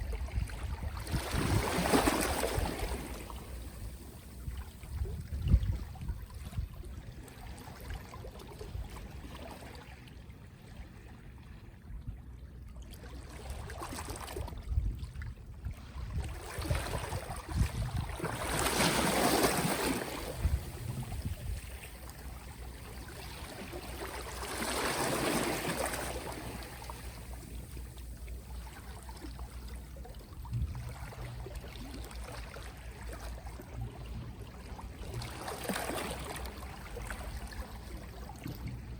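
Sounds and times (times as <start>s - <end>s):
gentle waves washing ashore: 0.0s - 5.0s, 15.8s - 38.9s.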